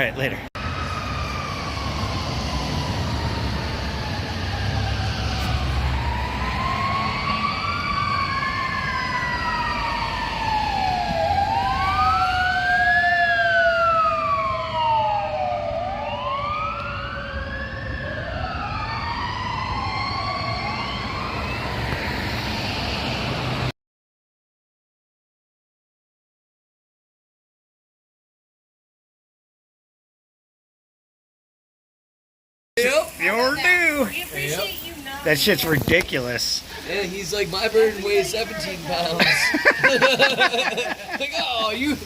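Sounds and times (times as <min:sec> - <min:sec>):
emergency vehicle sirens wailing: 0:00.0 - 0:23.7, 0:32.8 - 0:42.0
long falling siren tone: 0:00.6 - 0:23.7.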